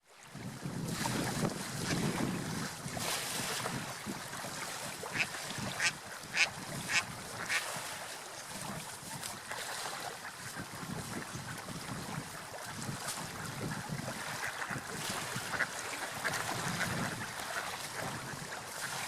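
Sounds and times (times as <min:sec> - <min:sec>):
water noise: 0:00.0 - 0:19.0
wind noise: 0:00.3 - 0:08.0, 0:10.4 - 0:19.0
ducks quacking: 0:05.0 - 0:07.8, 0:13.3 - 0:19.0.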